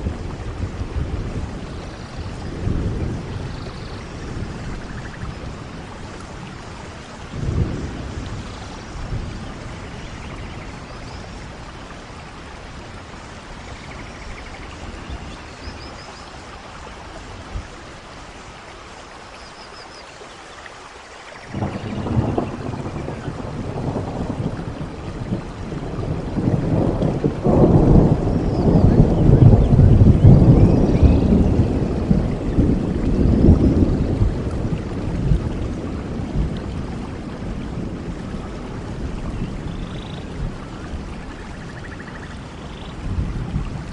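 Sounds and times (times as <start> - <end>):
thunder rumbling: 0.0 - 18.0, 21.5 - 43.9
steady rain: 0.0 - 43.9.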